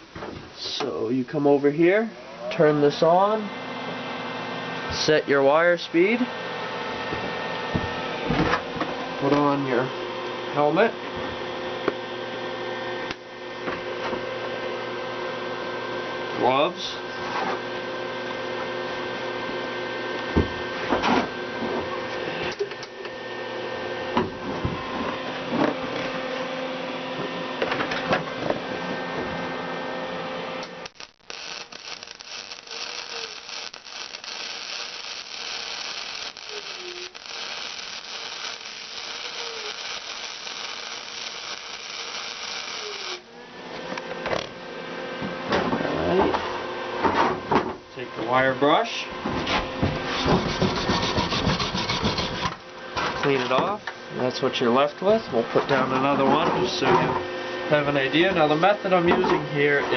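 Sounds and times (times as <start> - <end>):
welder electrical hum: 0.0 - 59.9
welding arc crackling: 30.6 - 43.3.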